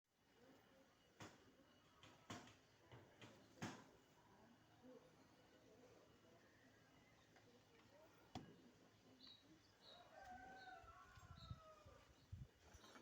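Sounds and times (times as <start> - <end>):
faint rooster crowing: 9.8 - 12.2.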